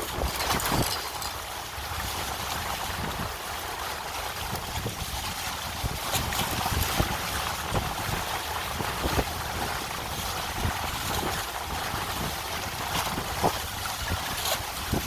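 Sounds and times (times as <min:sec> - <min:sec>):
water rushing along hull: 0:00.0 - 0:15.0
wind buffeting microphone: 0:00.0 - 0:15.0.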